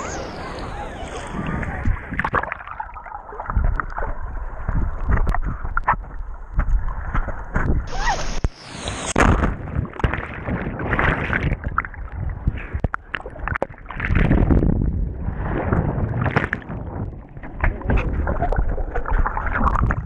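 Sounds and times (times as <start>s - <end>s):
ocean surf washing: 0.0s - 2.8s
water splashes: 0.0s - 20.0s.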